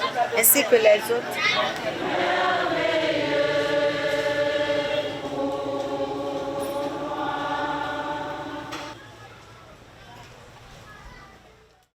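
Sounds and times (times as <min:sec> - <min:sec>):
choir singing held chords: 0:01.6 - 0:09.0.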